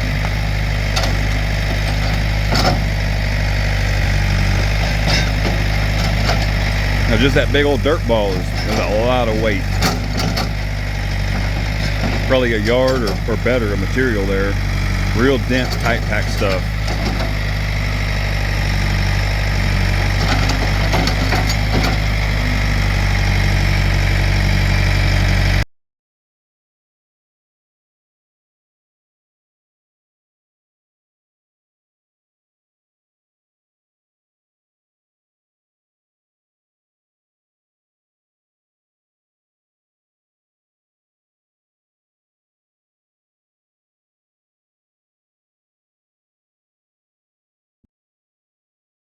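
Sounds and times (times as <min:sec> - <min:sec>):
backhoe engine running: 0:00.0 - 0:25.6.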